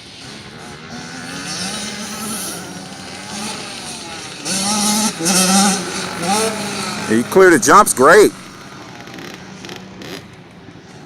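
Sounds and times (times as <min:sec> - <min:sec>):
motocross bike engines revving: 0:00.0 - 0:11.0.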